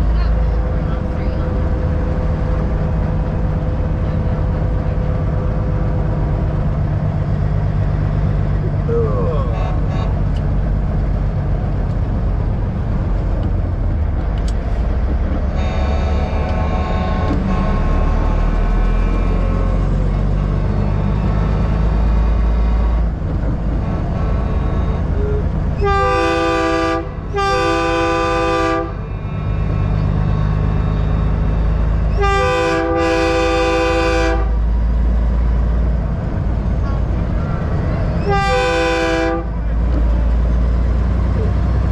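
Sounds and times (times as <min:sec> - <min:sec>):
truck engines rumbling: 0:00.0 - 0:41.9
truck air horn blasts: 0:09.4 - 0:10.3, 0:15.5 - 0:19.8, 0:23.8 - 0:30.2, 0:32.1 - 0:34.7, 0:38.2 - 0:39.9.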